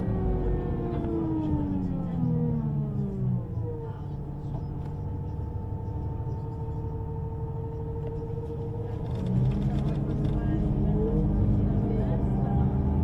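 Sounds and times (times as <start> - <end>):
train running rumble: 4.4 - 13.0.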